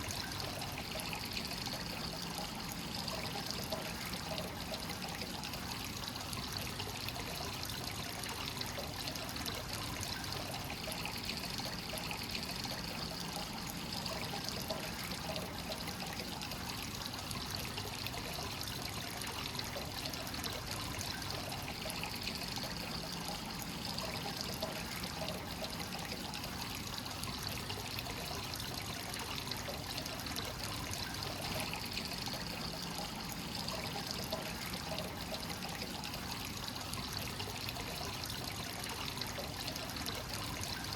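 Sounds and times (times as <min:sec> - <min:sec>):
water trickling into a bath: 0:00.0 - 0:40.9.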